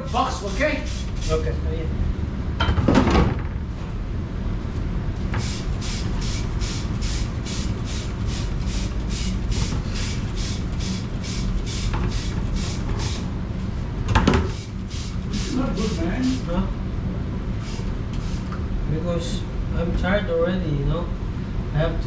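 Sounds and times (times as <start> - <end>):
rhythmic water spray swishing: 0.0 - 1.5, 5.4 - 13.3, 14.5 - 16.6, 17.6 - 18.5
dishwashing machine rumble: 0.0 - 3.6, 5.2 - 16.7, 17.5 - 18.6.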